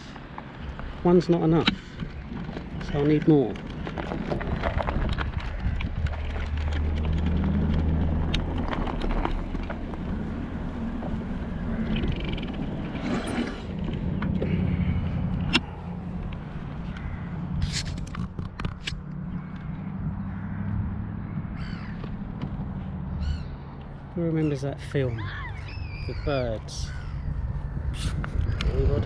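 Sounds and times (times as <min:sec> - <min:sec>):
rolling noise: 0:00.0 - 0:20.1
sharp clicks: 0:15.3 - 0:19.9.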